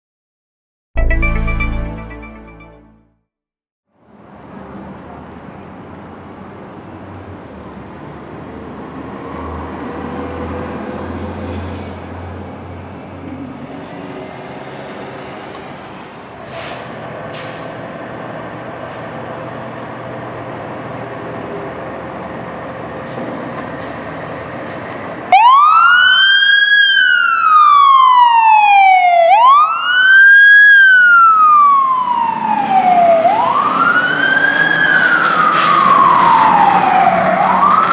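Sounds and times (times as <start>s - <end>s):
fire engine siren wailing: 25.1s - 37.9s.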